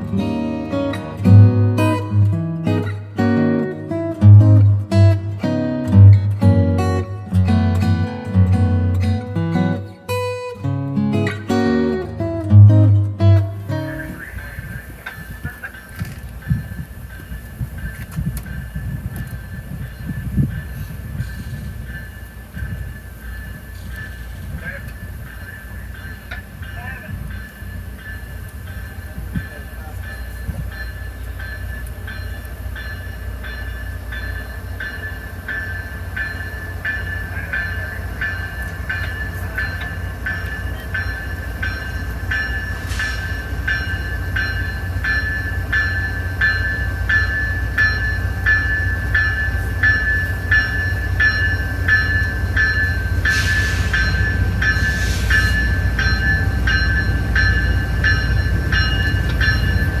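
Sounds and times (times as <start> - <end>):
train rumbling: 0.0 - 60.0
bell ringing: 11.2 - 60.0
brief hisses: 53.3 - 54.0, 54.9 - 55.6.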